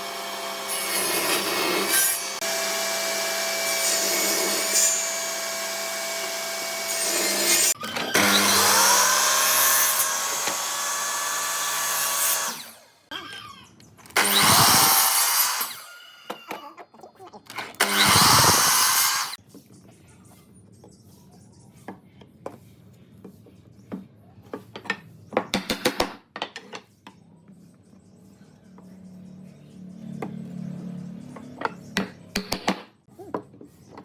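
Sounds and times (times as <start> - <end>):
power tool cutting wood: 0.0 - 13.5, 14.1 - 16.6, 17.6 - 19.4
tools and wood clicking: 24.5 - 27.2.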